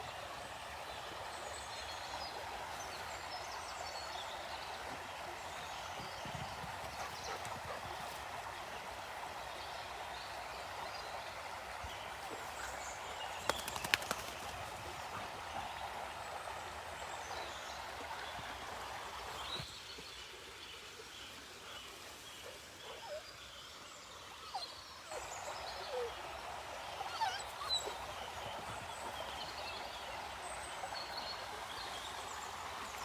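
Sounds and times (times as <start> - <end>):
river water running: 0.0 - 33.0
birds calling: 6.0 - 8.1.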